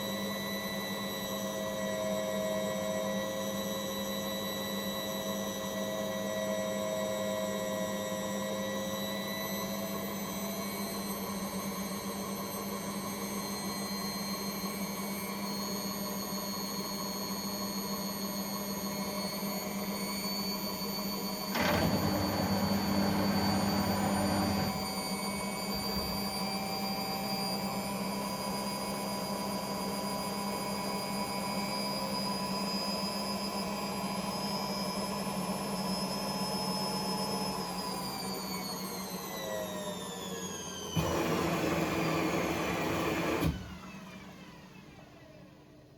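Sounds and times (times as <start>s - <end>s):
appliance motor humming: 21.4s - 26.6s
thin rising whine: 21.6s - 26.7s.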